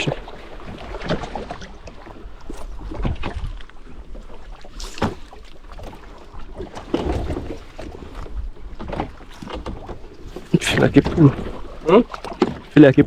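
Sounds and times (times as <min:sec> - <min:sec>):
water against boat: 0:00.0 - 0:13.0
wind buffeting microphone: 0:00.0 - 0:13.0.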